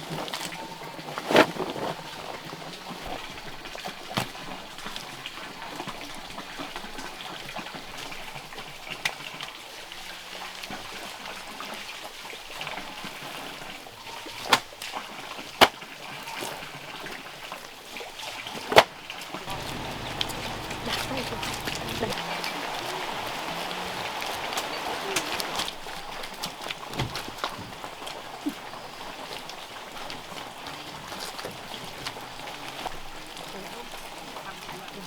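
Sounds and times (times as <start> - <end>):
water splashing: 19.5 - 26.0.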